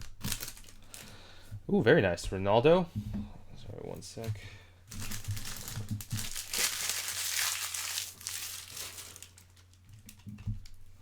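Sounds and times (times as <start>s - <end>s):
foil wrapper crinkling: 0.0s - 1.2s, 4.9s - 10.8s.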